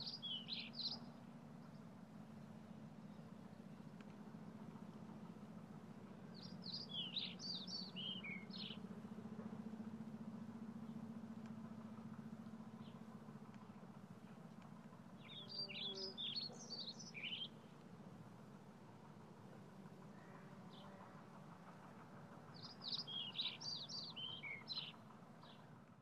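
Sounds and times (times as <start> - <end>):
songbird singing: 0.0 - 5.1, 6.0 - 18.0, 20.0 - 21.4, 22.5 - 25.7
low background hum: 0.0 - 26.0.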